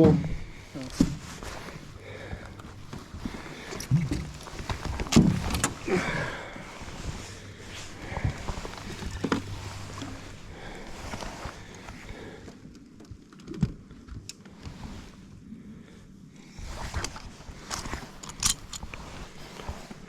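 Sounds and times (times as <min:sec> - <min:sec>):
clicks and knocks of handling: 0:00.0 - 0:06.0.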